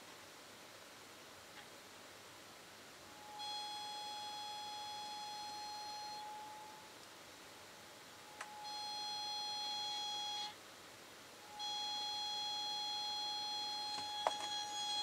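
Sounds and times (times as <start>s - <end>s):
phone camera squeaky whine: 11.6s - 15.0s.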